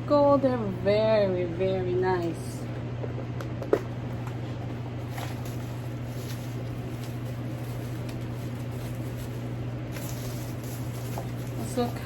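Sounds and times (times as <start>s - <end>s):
handbag packaging rustling: 4.7s - 12.0s.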